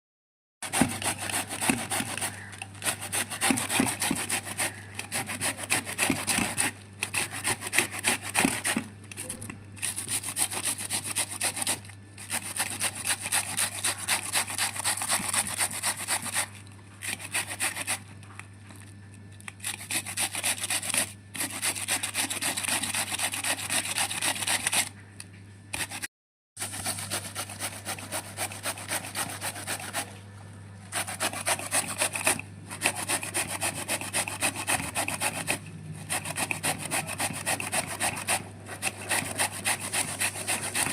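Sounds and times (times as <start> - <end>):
cabbage being shredded: 0.6 - 18.0, 19.4 - 24.9, 26.6 - 30.2, 30.9 - 40.9
low steady hum: 24.5 - 26.0, 26.6 - 40.9.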